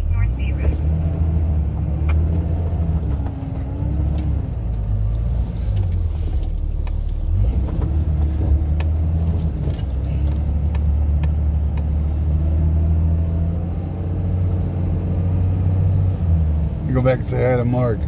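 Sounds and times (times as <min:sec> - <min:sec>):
car engine and tyre rumble: 0:00.0 - 0:18.0.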